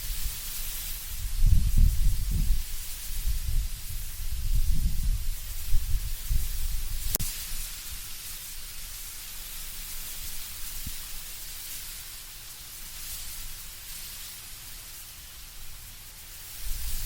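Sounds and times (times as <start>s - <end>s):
leaves rustling in wind: 0.0s - 17.0s
low gusty wind rumble: 1.1s - 7.2s.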